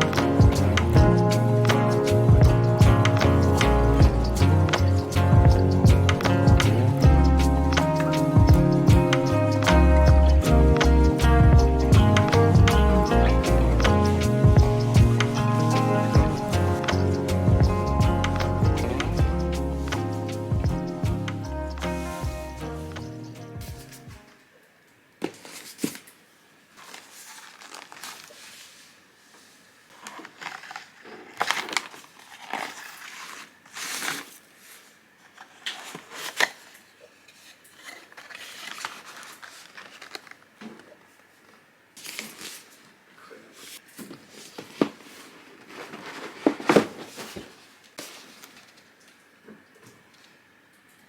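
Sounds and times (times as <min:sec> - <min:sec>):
packaging rustling and crinkling: 0:25.2 - 0:49.2.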